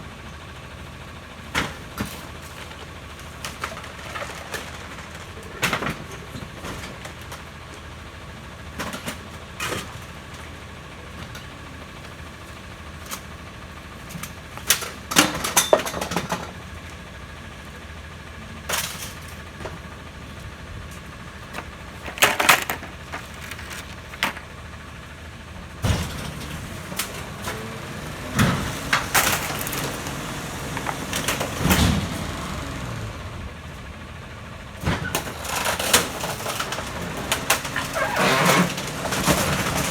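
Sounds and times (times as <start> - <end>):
garbage truck running: 0.0 - 39.9
bangs and clatters of waste loading: 1.5 - 8.0, 14.0 - 16.9, 20.9 - 39.9.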